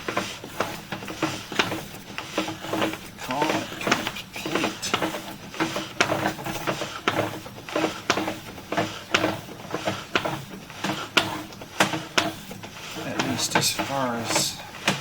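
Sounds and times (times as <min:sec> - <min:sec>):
steady hum: 0:00.0 - 0:06.8, 0:12.9 - 0:15.0.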